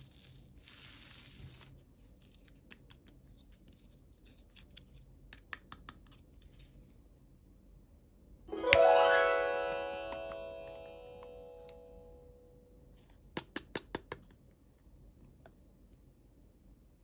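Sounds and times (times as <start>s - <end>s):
rising chime-like ringing: 8.5s - 11.7s.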